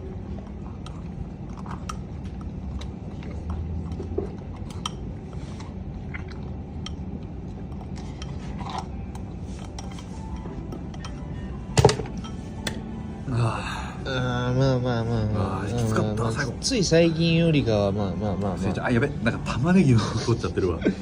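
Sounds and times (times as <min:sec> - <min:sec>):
noisy chewing and slurping: 0:00.0 - 0:11.6
low hum: 0:00.0 - 0:21.0.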